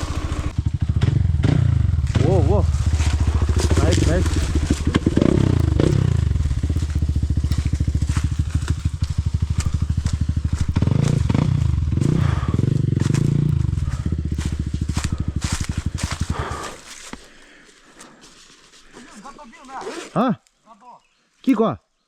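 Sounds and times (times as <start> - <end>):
motorcycle engine running: 0.0 - 17.1
sharp clicks and crackles: 3.0 - 11.2.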